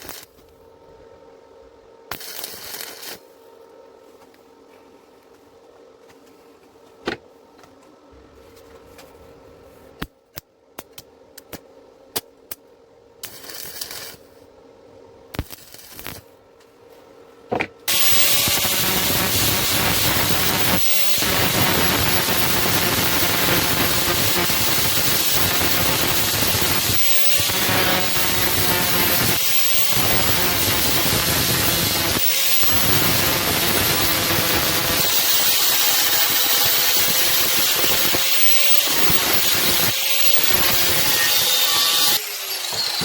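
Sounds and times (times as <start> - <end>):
loud steady hiss: 17.9 - 41.4.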